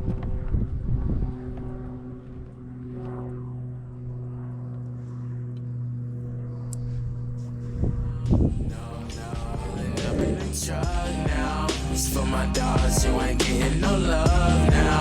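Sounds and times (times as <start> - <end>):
wind on microphone: 0.0 - 2.1, 6.9 - 10.6
motor droning: 0.0 - 15.0.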